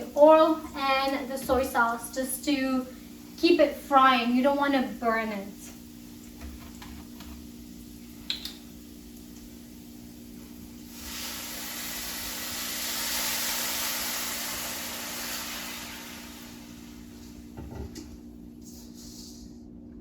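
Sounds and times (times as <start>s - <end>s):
noodles sizzling in a wok: 0.0s - 17.7s.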